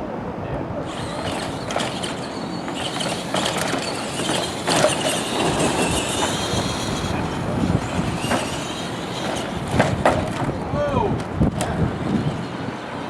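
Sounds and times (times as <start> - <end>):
toy truck motors whining: 0.8 - 10.6.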